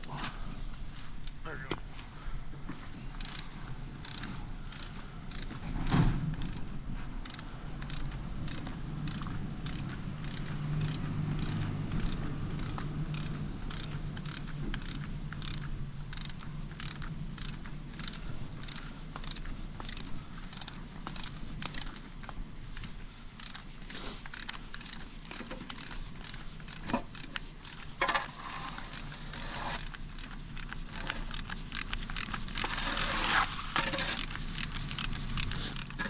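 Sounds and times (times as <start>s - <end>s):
ratchet wrench clicking: 3.1s - 36.0s.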